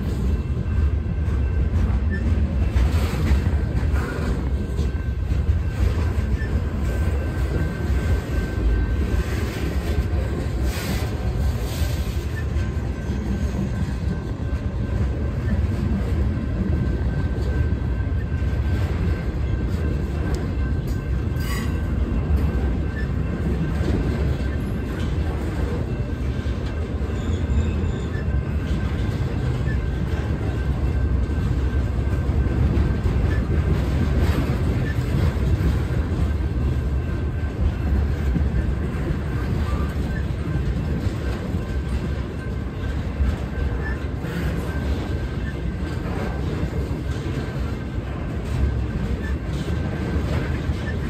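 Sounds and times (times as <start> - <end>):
freight train wheels rumbling: 0.0 - 51.0.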